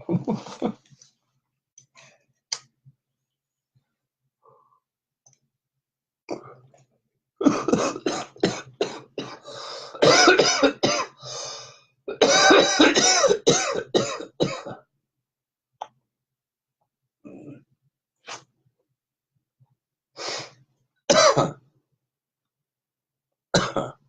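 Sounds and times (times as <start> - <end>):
man coughing: 10.0 - 11.2, 12.1 - 14.8, 21.1 - 21.6.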